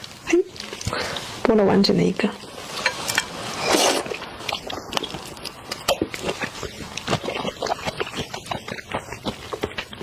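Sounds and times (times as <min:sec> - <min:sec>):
person chewing wetly: 0:03.7 - 0:10.0.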